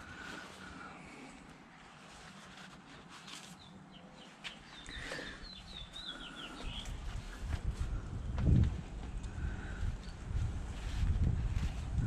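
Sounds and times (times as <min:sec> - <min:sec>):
bird chirping: 0:03.2 - 0:07.3.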